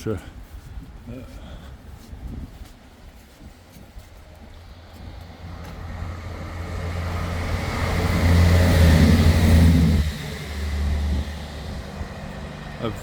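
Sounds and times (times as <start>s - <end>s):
vehicle engine passing: 4.7s - 13.0s.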